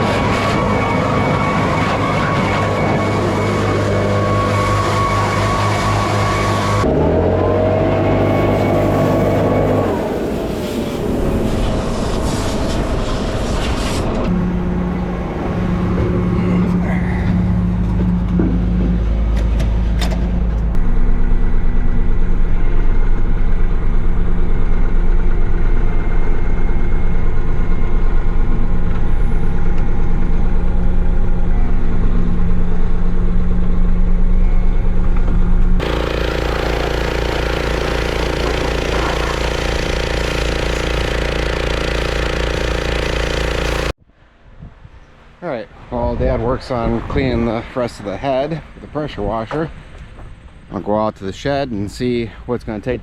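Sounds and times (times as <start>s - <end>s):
engine running steadily: 0.0s - 11.9s, 14.2s - 44.0s.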